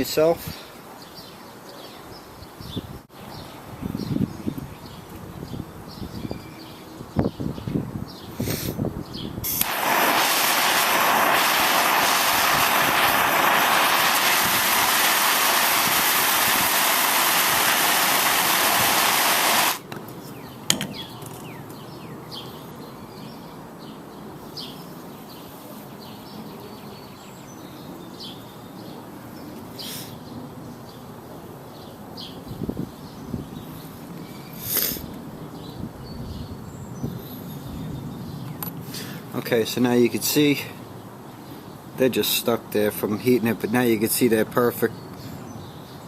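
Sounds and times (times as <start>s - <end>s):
faint bird chirps: 0.0s - 9.3s, 32.2s - 39.2s
gas torch hissing: 9.4s - 19.8s.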